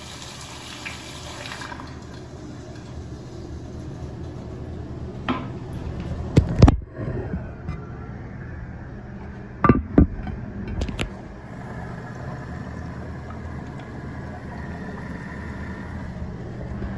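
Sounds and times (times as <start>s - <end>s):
water hissing into toilet tank: 0.0s - 4.1s, 11.4s - 16.3s.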